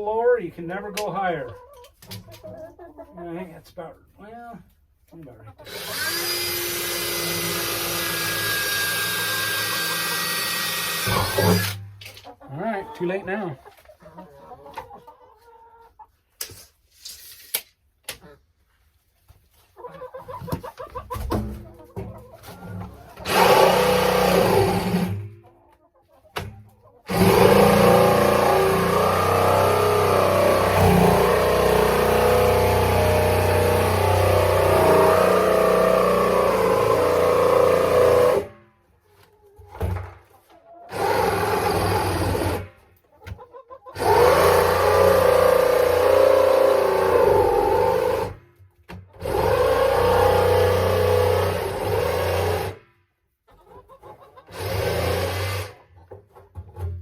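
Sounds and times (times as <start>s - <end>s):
power tool cutting plastic: 5.7s - 11.8s, 23.2s - 25.3s, 27.1s - 38.5s, 40.9s - 42.7s, 44.0s - 48.4s, 49.2s - 52.8s, 54.5s - 55.8s.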